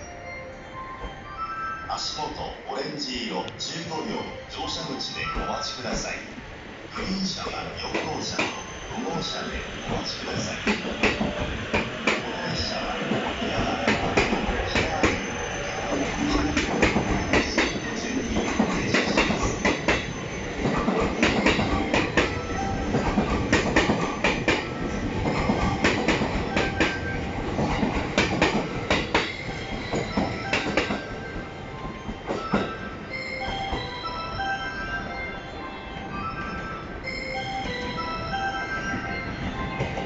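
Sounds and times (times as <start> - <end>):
musical chime notes: 0.0 - 2.9, 21.4 - 23.2, 28.6 - 40.0
train rumble: 1.9 - 40.0
train wheels clacking over rail joints: 9.9 - 15.3, 15.9 - 31.1.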